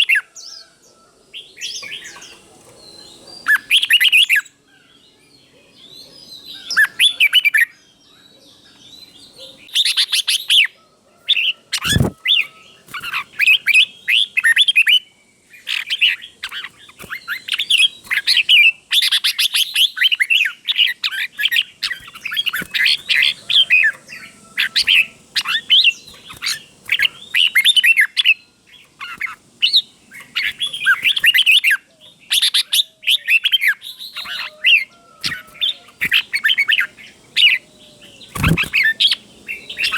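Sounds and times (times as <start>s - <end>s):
bulbul singing warbled phrases: 11.8s - 39.9s.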